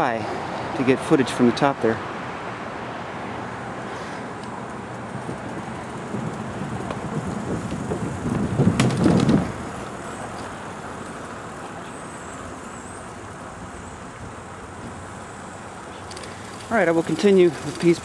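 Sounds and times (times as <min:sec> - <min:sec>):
road traffic noise: 0:00.0 - 0:18.0
low rumble with sharp knocks: 0:05.2 - 0:09.6.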